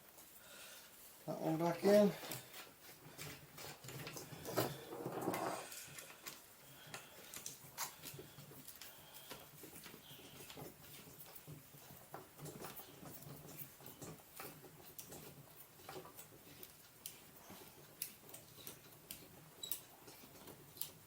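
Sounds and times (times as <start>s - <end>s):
scraping rubbing noise: 4.4s - 5.9s
small clicks and taps of parts: 5.9s - 21.0s.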